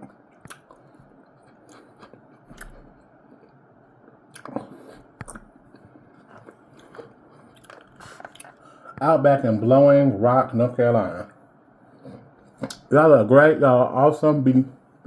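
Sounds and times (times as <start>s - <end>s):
mouth clicks and smacks: 0.0s - 3.5s, 4.3s - 8.6s
person chewing food: 0.0s - 9.0s, 11.9s - 12.9s.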